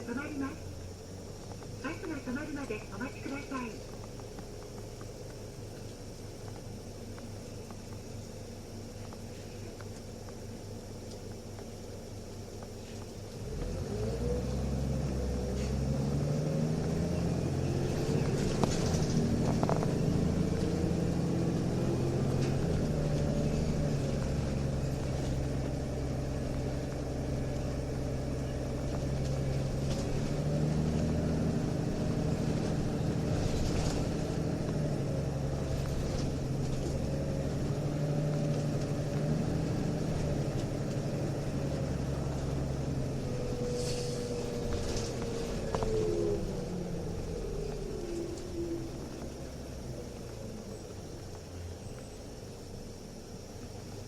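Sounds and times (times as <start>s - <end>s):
bus diesel engine revving: 12.0s - 51.0s.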